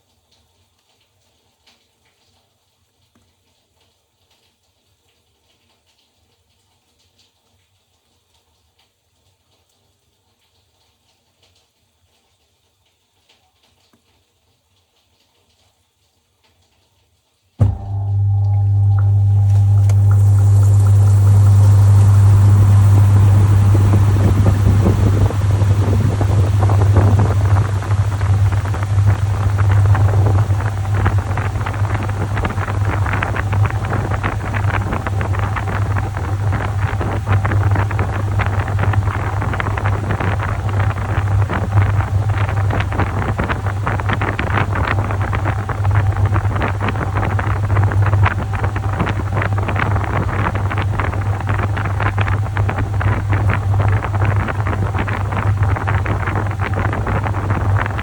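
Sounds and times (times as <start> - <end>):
washing machine motor humming: 17.6 - 58.0.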